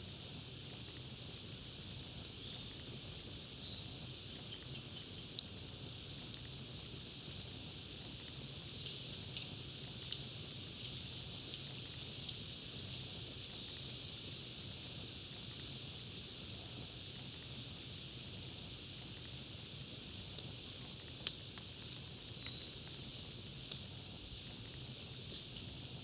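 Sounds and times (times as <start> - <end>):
campfire crackling: 0.0 - 26.0
steady hiss and low rumble: 0.0 - 26.0
sharp pops of fire: 0.1 - 26.0
faint bird chirps: 22.4 - 22.9.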